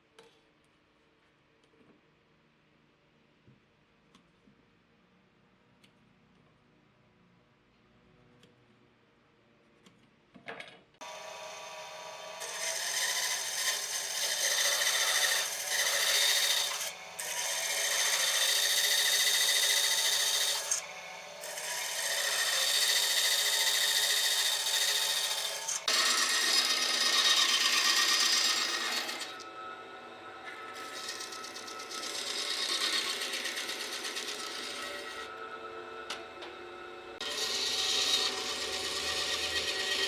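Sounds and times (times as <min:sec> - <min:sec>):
power tool cutting wood: 0:11.0 - 0:40.0.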